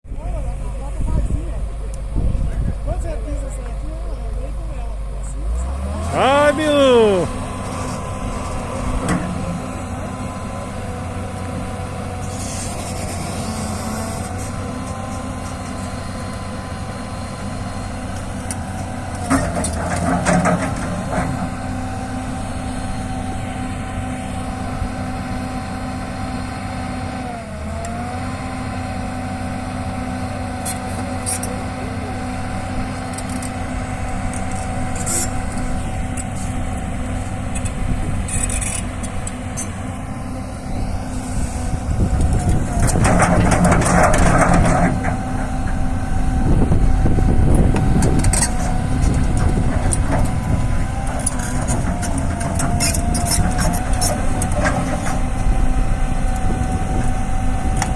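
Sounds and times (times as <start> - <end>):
diesel engine running: 0.1 - 57.9
knocks and clanks: 19.2 - 21.5, 42.8 - 45.2.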